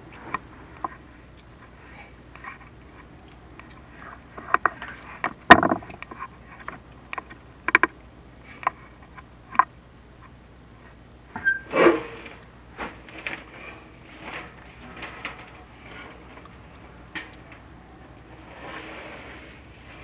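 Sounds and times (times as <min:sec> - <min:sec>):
camera cable knocking on flue: 0:05.5 - 0:06.0.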